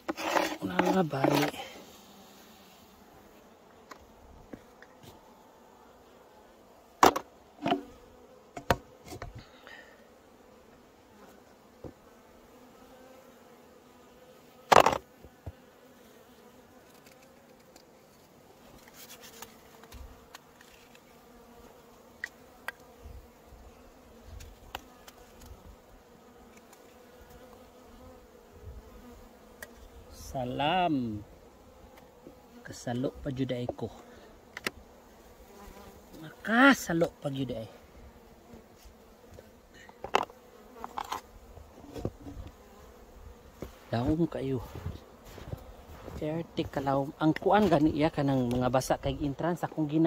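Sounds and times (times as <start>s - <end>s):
bees humming: 0.0s - 50.0s.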